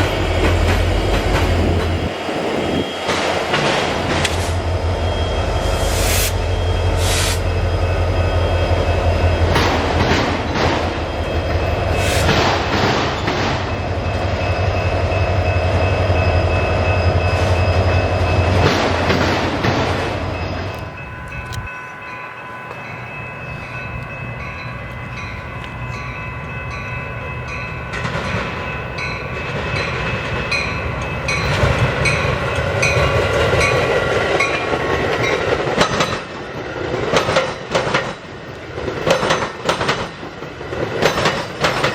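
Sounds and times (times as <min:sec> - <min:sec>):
heavy train engine rumble: 0:00.0 - 0:41.9
high ringing tones: 0:01.5 - 0:12.1, 0:13.0 - 0:18.7, 0:20.1 - 0:33.9
wheels clattering over rail joints: 0:09.4 - 0:13.9, 0:18.4 - 0:21.6, 0:27.9 - 0:41.9.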